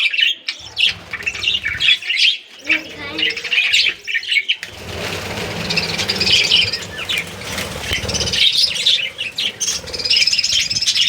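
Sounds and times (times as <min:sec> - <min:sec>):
budgerigars chirping: 0:00.0 - 0:11.0
rustling: 0:00.6 - 0:11.0.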